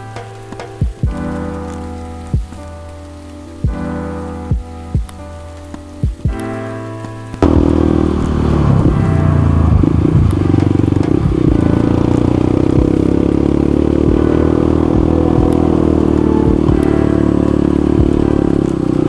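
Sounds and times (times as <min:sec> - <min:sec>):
motorcycle engine running: 0:07.4 - 0:19.0.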